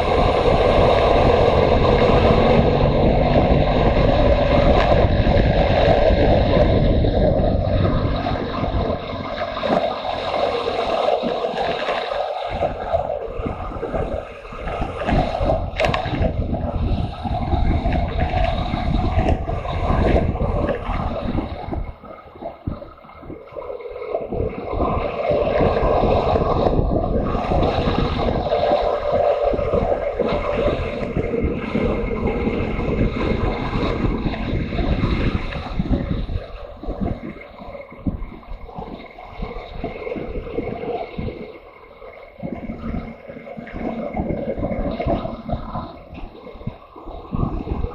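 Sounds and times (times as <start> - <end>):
wind rush on microphone: 0.0 - 47.9.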